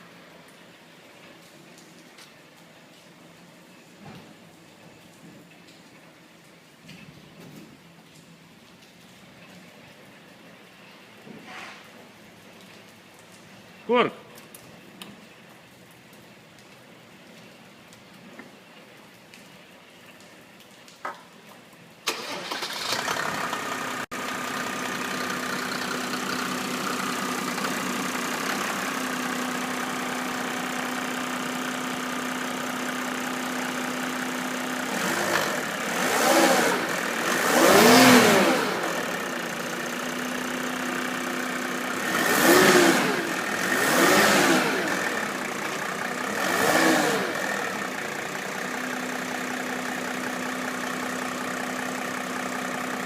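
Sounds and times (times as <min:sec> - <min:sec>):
diesel engine starting and idling: 0:22.0 - 0:53.0
diesel engine revving: 0:22.1 - 0:53.0.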